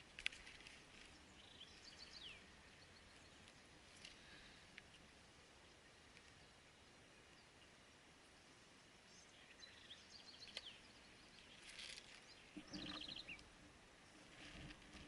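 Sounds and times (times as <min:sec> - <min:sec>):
small birds chirping: 0:00.0 - 0:14.8
bird trill: 0:12.6 - 0:13.4.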